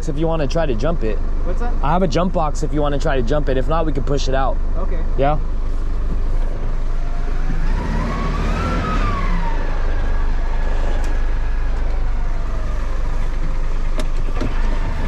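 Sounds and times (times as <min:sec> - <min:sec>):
truck engine idling: 0:00.0 - 0:15.0
rising and falling tone: 0:06.6 - 0:15.0.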